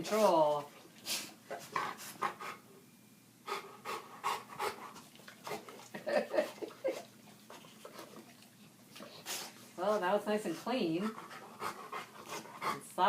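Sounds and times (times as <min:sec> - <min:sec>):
dog panting: 0:00.1 - 0:02.6, 0:03.4 - 0:13.0.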